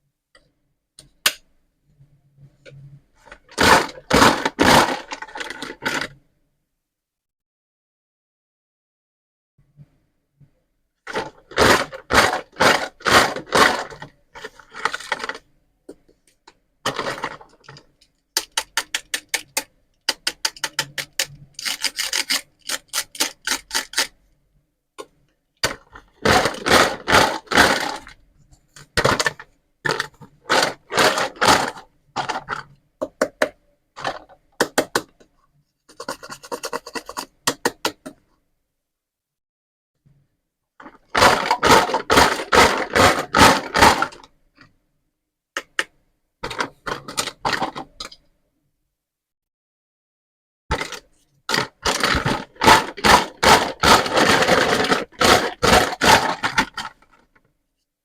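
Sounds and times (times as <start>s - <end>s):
toy pieces scraping and rasping: 18.4s - 24.1s, 50.7s - 57.0s.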